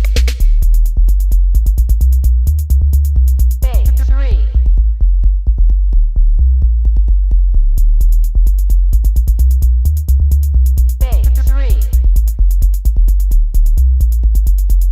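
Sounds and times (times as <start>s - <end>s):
deep sub-bass: 0.0s - 14.9s
fast drum-machine beat: 0.0s - 14.9s
pitch-bent vocal sample: 3.6s - 5.0s, 11.0s - 12.2s.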